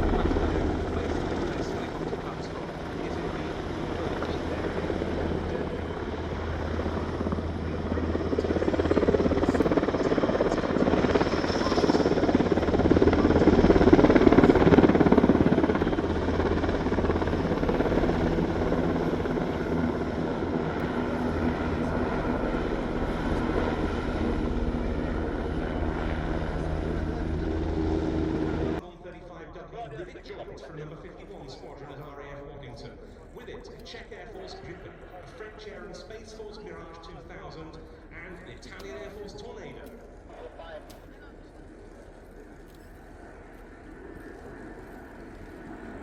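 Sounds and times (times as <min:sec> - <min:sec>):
low hum: 0:00.0 - 0:29.7
aircraft engine drone: 0:00.0 - 0:46.0.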